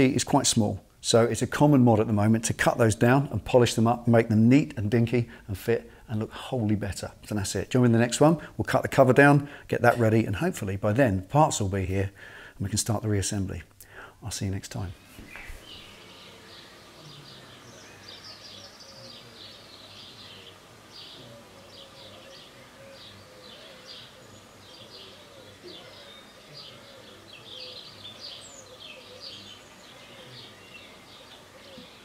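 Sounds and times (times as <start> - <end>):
small birds chirping: 13.9 - 32.0.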